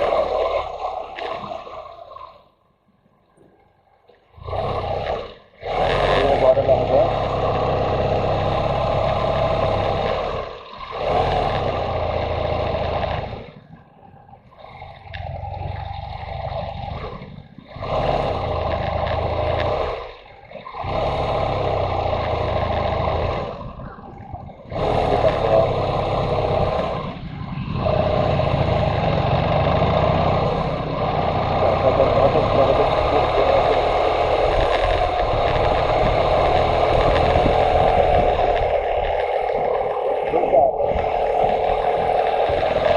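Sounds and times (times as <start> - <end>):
motorcycle engine running: 5.7 - 13.8, 14.8 - 20.1, 20.8 - 42.9
wind rushing: 34.1 - 42.9.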